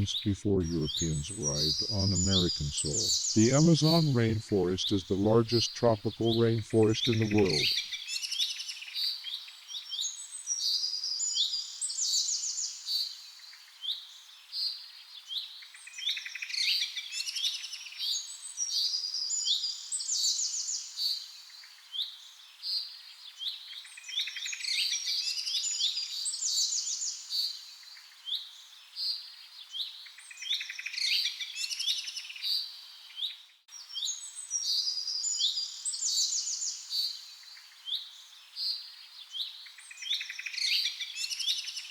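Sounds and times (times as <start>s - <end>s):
songbirds chirping and singing: 0.0s - 8.0s.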